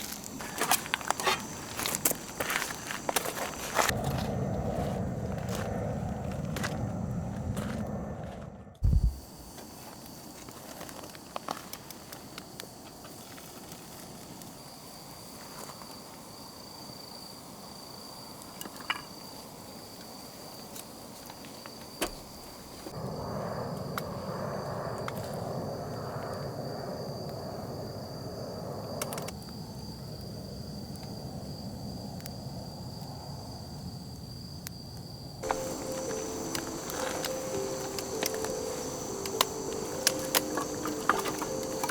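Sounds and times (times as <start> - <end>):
high-pitched insect trill: 0.0 - 7.3, 8.8 - 41.9
campfire crackling and popping: 35.4 - 41.9
even hiss: 35.4 - 41.9.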